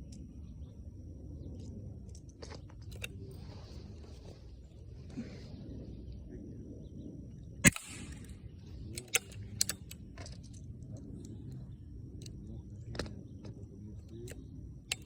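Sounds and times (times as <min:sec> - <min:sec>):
low background rumble: 0:00.0 - 0:15.0
sharp gunshot: 0:07.7 - 0:08.4
light clicks: 0:07.7 - 0:15.0.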